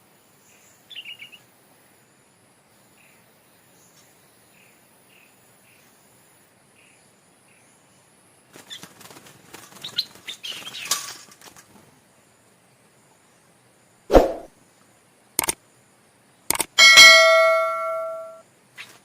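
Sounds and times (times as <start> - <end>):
bird wings flapping: 8.5 - 11.9.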